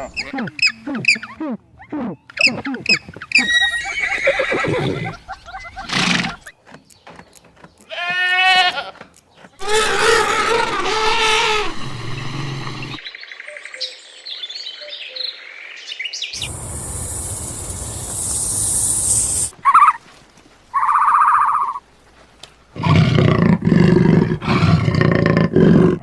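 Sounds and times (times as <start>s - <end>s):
goat bleating: 7.9s - 9.0s, 9.6s - 11.8s
steady high hiss: 16.4s - 19.6s.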